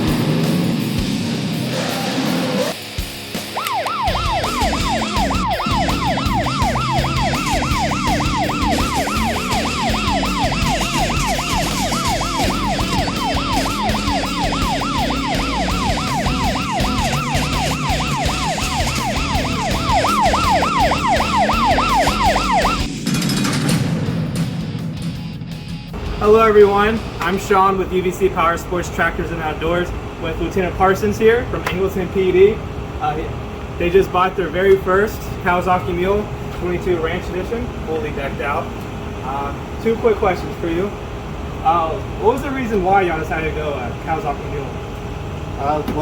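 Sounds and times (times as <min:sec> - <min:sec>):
background music: 0:00.0 - 0:27.8
police siren yelping: 0:03.4 - 0:22.9.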